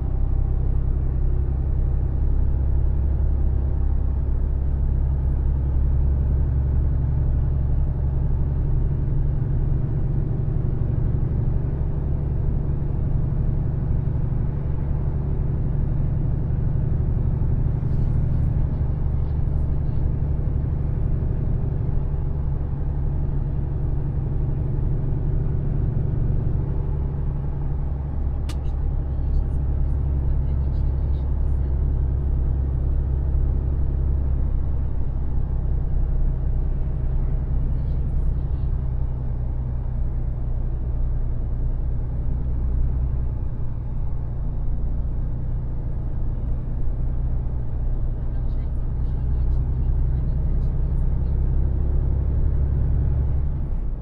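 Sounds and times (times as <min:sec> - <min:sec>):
road noise: 0:00.0 - 0:54.0
truck diesel engine driving: 0:00.0 - 0:54.0
sharp click: 0:28.4 - 0:28.8.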